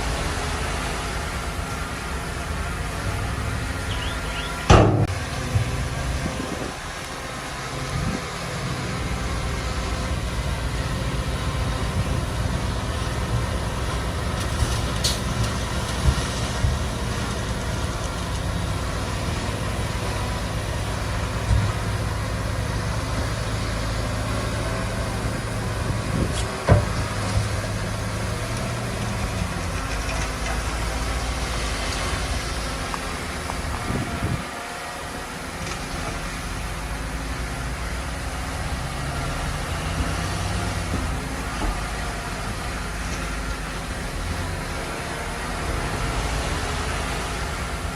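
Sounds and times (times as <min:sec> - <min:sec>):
diesel engine running: 0:00.0 - 0:47.9
sharp knocks: 0:04.7 - 0:05.7.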